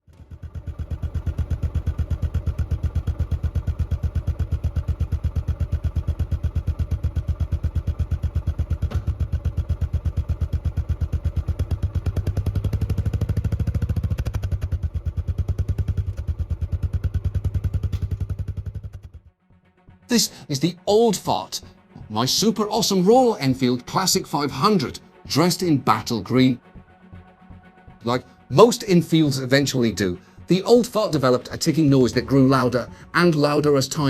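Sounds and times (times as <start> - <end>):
motorcycle engine idling: 0.0 - 19.3.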